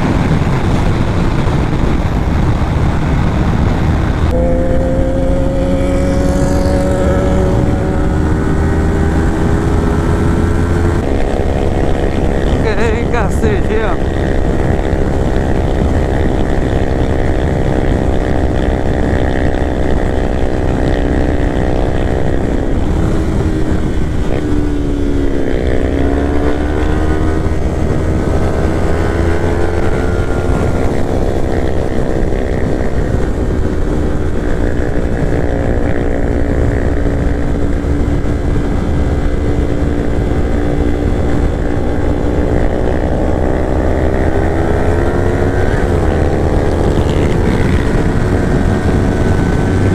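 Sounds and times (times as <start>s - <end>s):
motorcycle engine running: 0.0s - 49.9s
wind rumble on microphone: 0.0s - 49.9s.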